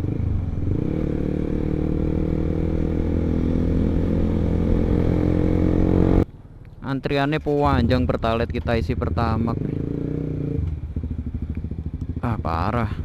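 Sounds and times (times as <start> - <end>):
motorcycle engine running steadily: 7.6 - 13.0.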